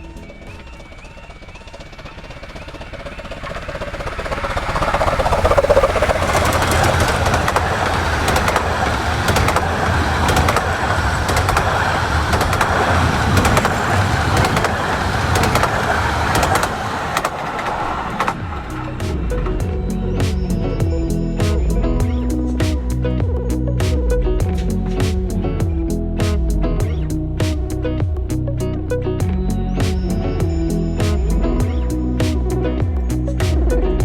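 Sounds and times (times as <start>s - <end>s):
steam train passing: 0.0s - 21.8s
wheels clicking on track: 0.0s - 21.8s.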